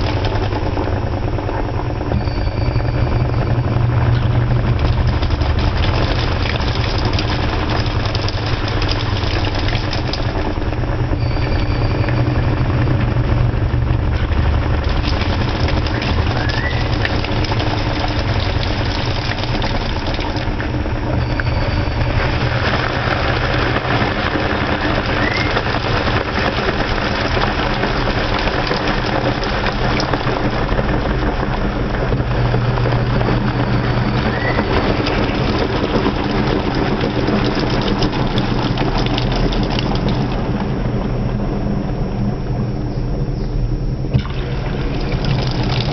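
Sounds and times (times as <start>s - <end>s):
washing machine running: 0.0s - 45.9s
short rising squeak: 2.1s - 4.4s, 11.1s - 12.6s, 21.1s - 22.5s.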